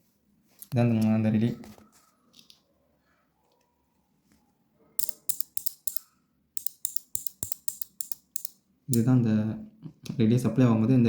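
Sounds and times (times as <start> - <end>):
relay clicking: 5.0 - 6.0, 6.6 - 9.1.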